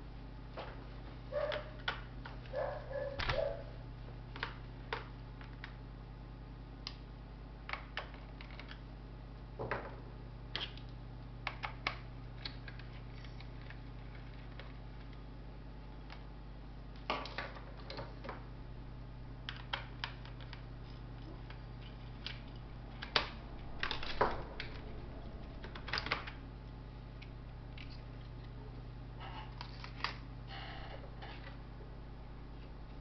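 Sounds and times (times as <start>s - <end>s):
steady low hum: 0.0s - 33.0s
laptop parts clicking and tapping: 10.6s - 15.2s.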